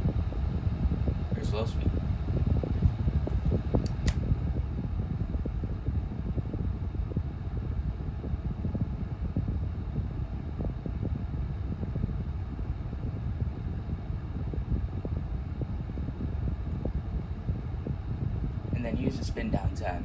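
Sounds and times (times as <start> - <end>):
table fan running: 0.0 - 20.0
sharp clicks: 3.8 - 4.2.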